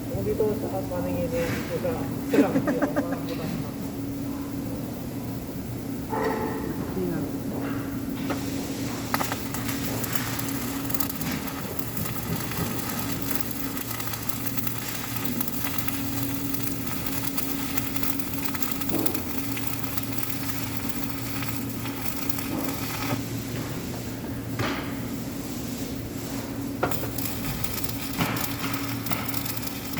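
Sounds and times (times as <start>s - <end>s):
electrical hum: 0.0s - 29.9s
welding arc crackling: 8.2s - 29.9s.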